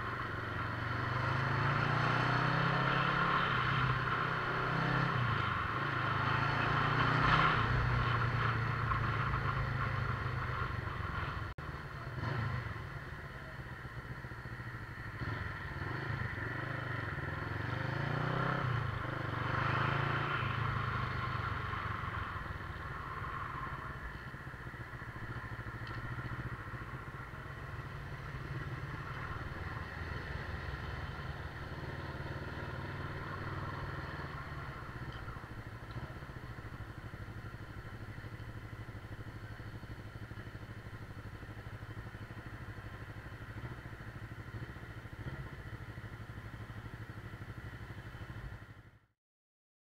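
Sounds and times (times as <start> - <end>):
motorcycle engine running: 0.0 - 49.1.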